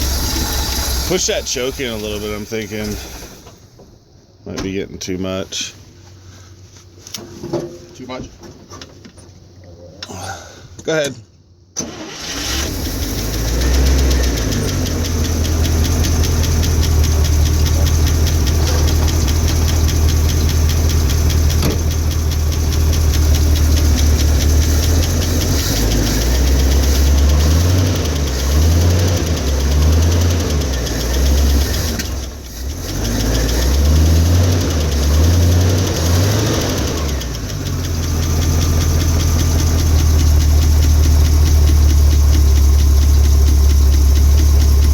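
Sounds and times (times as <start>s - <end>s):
engine revving unevenly and idling: 0.0s - 3.2s, 12.2s - 44.9s.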